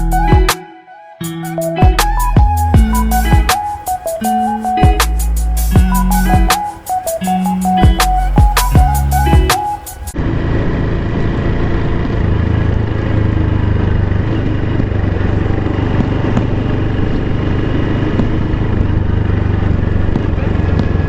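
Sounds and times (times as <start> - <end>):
background music: 0.0 - 10.2
motorcycle engine running: 1.8 - 21.0
wind and road noise: 2.0 - 21.0.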